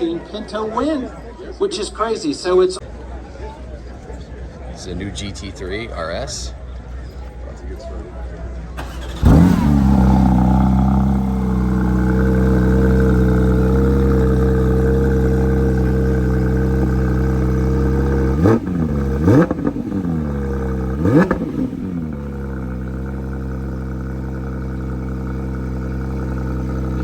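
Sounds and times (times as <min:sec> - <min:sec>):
car engine idling: 0:08.8 - 0:27.0
engine throttle blips: 0:08.8 - 0:27.0.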